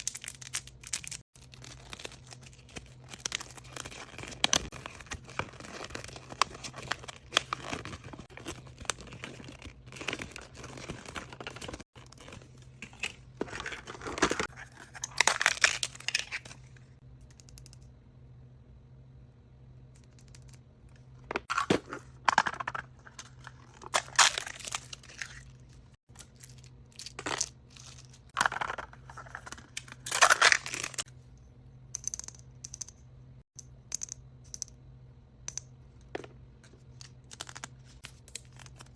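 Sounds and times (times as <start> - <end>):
toy wrapping crinkling: 0.0 - 16.4.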